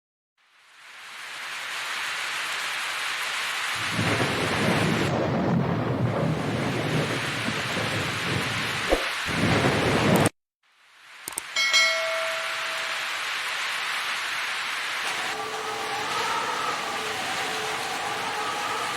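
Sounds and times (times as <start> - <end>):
hail and heavy rain pelting: 1.7 - 10.3, 12.4 - 18.9.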